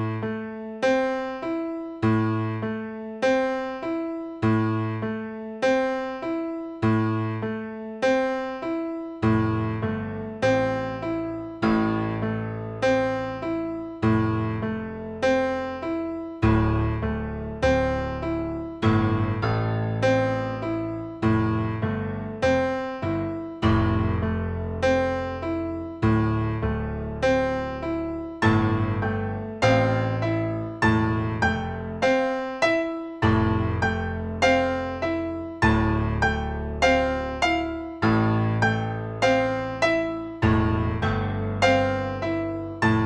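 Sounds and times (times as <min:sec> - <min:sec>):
piano music: 0:00.0 - 0:43.0.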